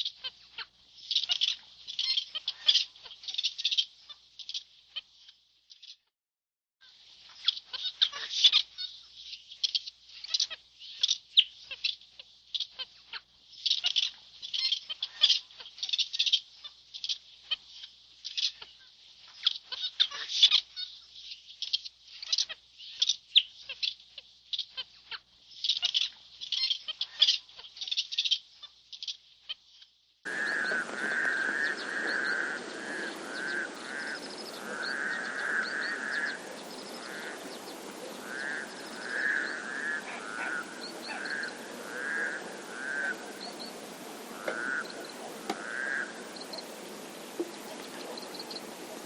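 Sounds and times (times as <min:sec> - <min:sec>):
short chirping calls: 0:30.3 - 0:49.0
steady hiss: 0:30.3 - 0:49.0.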